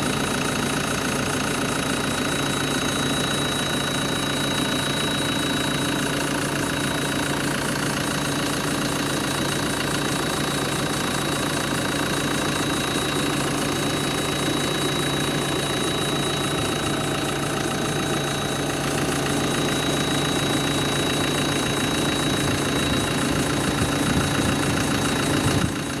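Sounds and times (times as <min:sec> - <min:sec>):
diesel engine running: 0:00.0 - 0:26.0
thin high whine: 0:12.4 - 0:25.7.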